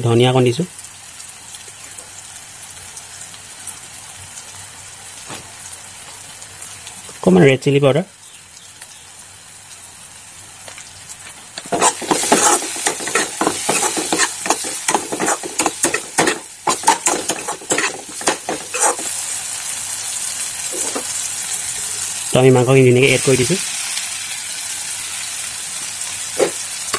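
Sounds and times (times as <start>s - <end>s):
food sizzling in a wok: 0.0s - 26.9s
metal spatula scraping pan: 11.6s - 19.2s, 20.7s - 21.1s.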